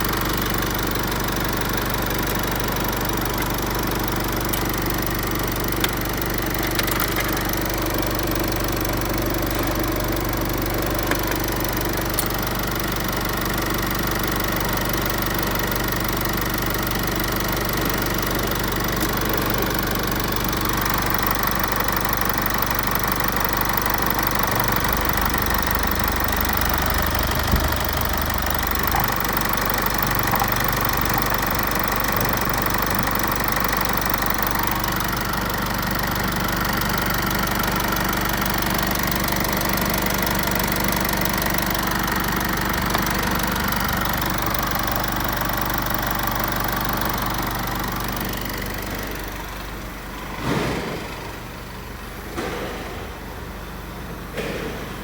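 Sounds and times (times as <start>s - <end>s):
diesel engine idling: 0.0s - 55.0s
thump: 50.4s - 51.3s, 52.3s - 53.1s, 54.4s - 54.9s.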